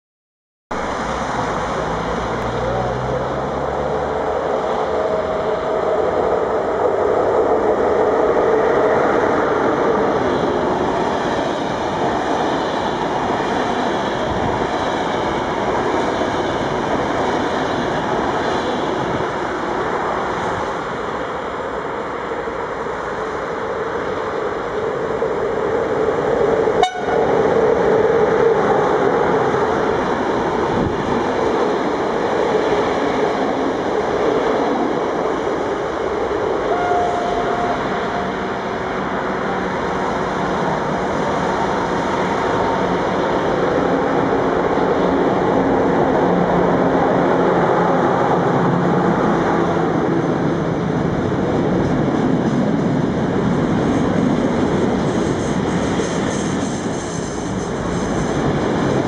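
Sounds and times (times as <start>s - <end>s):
freight train rolling past: 0.8s - 59.0s
passenger train rushing past: 0.8s - 59.0s
train wheel clatter and rattle: 51.2s - 59.0s.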